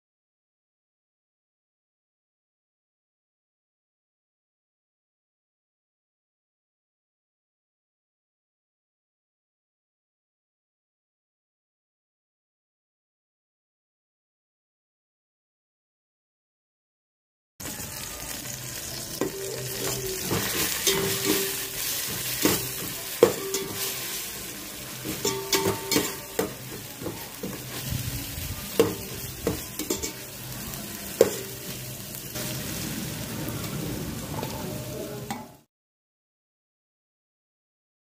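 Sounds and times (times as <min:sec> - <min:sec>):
food sizzling in hot oil: 0:17.6 - 0:35.7
ladle scraping and knocking pot: 0:19.2 - 0:24.1, 0:25.0 - 0:28.0, 0:28.8 - 0:30.2.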